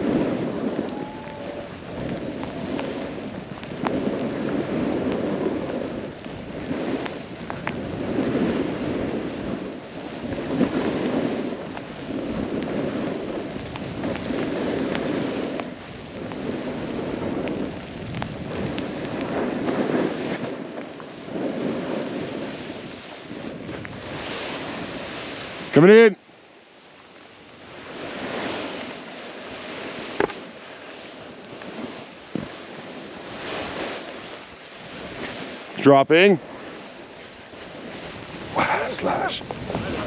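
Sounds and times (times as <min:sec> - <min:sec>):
snowboard swooshing through powder: 0:00.0 - 0:40.0
wind noise on microphone: 0:00.0 - 0:40.0.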